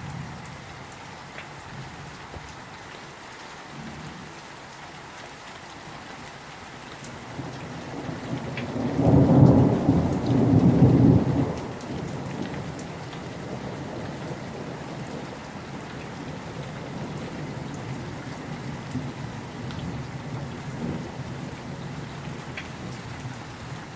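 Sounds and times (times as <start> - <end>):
steady rain: 0.0 - 23.9
thunder rumbling: 7.4 - 23.4.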